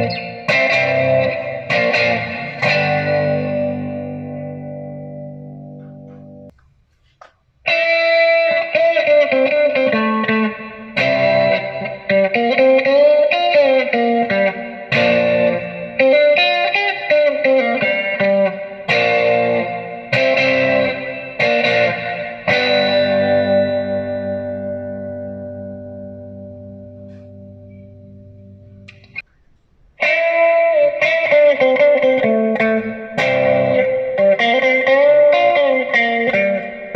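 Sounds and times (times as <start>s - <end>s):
overdriven electric guitar: 0.0s - 6.5s, 7.6s - 29.2s, 30.0s - 36.9s.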